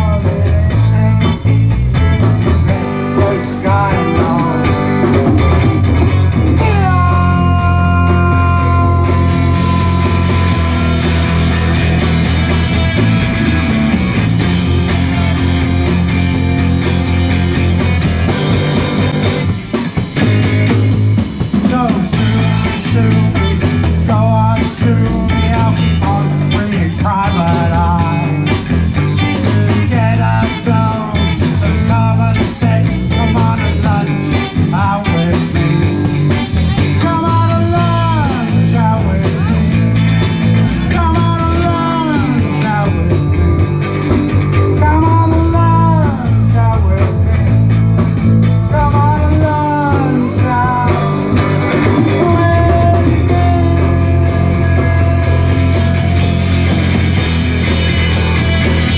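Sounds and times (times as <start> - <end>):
live rock band playing: 0.0 - 58.9
wavering guitar lead line: 0.0 - 58.9.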